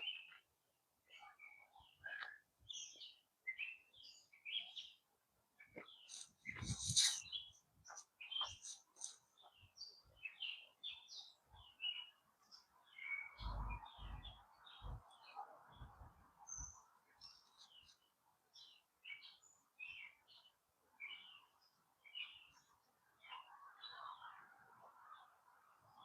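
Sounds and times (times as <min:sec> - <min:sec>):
songbirds chirping: 0:00.0 - 0:26.0
rustling: 0:06.0 - 0:09.2.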